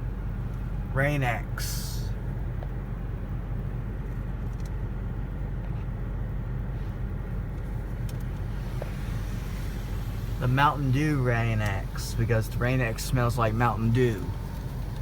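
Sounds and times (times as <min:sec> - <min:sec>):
car wash machinery rumble: 0:00.0 - 0:15.0
water spraying on car: 0:08.4 - 0:15.0.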